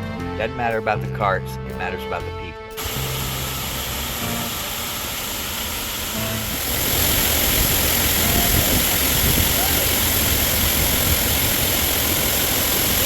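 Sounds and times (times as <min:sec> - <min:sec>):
wind rushing on microphone: 0:06.6 - 0:11.7.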